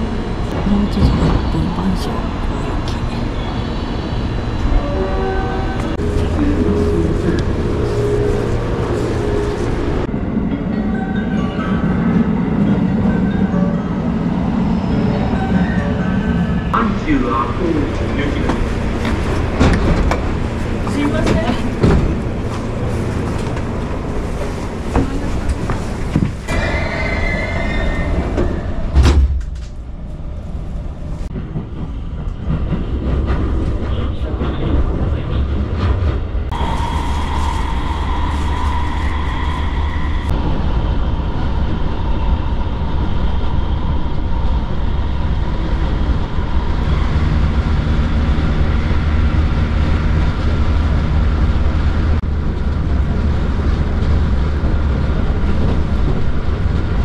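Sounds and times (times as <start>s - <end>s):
train running rumble: 0.0s - 57.0s
train doors thumping shut: 18.4s - 22.4s, 28.3s - 29.8s.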